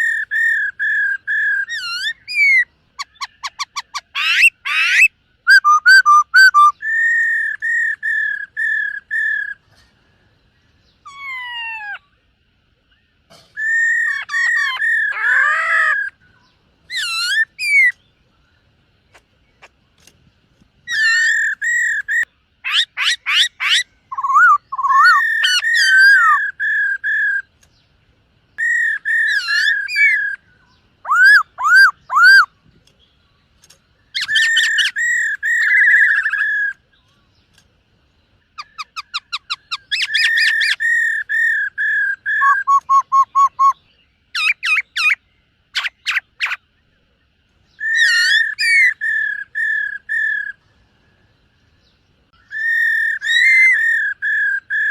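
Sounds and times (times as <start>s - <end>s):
bird singing whistled phrases: 0.0s - 9.6s, 13.6s - 18.0s, 20.9s - 27.5s, 28.6s - 32.5s, 34.1s - 36.8s, 38.6s - 45.2s, 47.7s - 50.6s, 52.4s - 54.9s.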